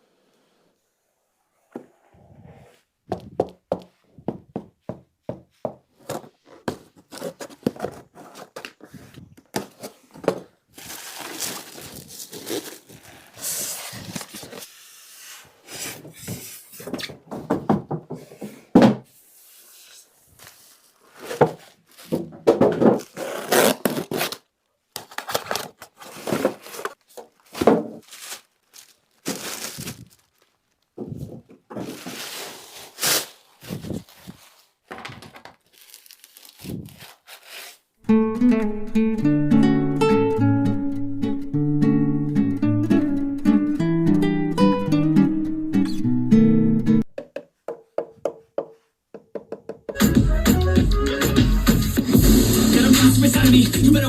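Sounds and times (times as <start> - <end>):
packaging rustling: 6.0 - 14.8, 22.8 - 37.9
cardboard box knocks and thunks: 21.3 - 23.1, 27.5 - 28.0.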